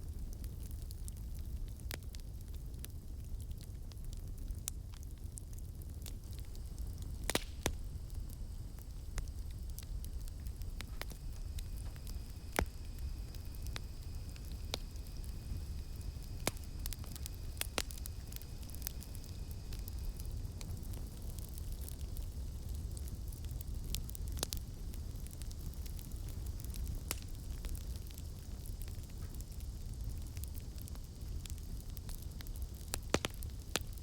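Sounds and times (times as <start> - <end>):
campfire crackling and popping: 0.0 - 34.0
low rumble of flames: 0.0 - 34.0
high insect drone: 7.9 - 20.4.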